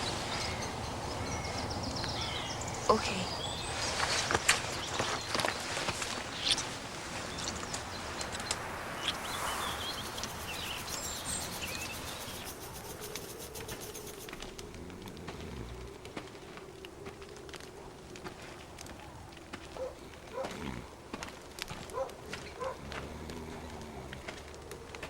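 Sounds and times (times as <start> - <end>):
birds chirping: 0.0 - 16.0
outdoor background hiss: 0.0 - 25.0
fast high ticking trill: 9.8 - 14.4.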